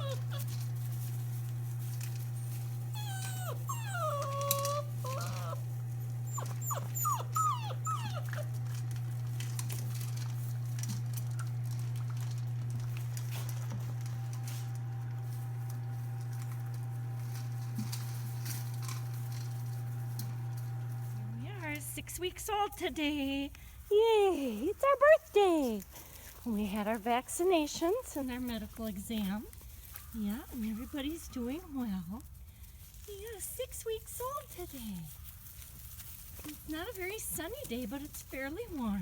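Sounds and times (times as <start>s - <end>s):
puppy whining: 0.0s - 1.2s, 2.0s - 10.4s
steady low hum: 0.0s - 24.7s.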